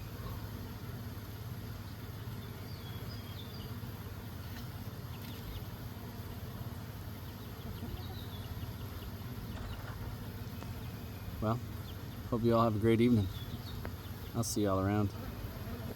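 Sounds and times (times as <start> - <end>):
honeybees buzzing: 0.0 - 15.9.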